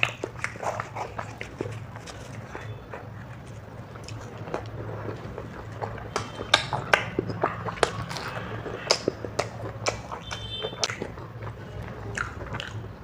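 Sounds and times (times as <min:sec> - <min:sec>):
chewing with wet mouth clicks: 0:00.0 - 0:13.0.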